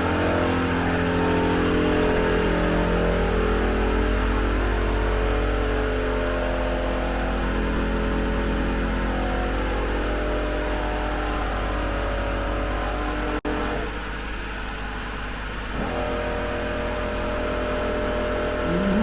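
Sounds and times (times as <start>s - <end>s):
air compressor running: 15.7s - 19.0s.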